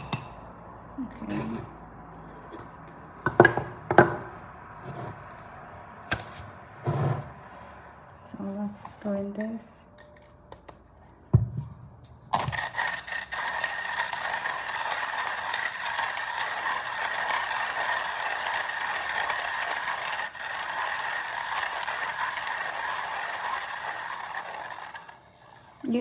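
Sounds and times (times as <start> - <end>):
hand coffee grinder grinding: 12.3 - 26.0.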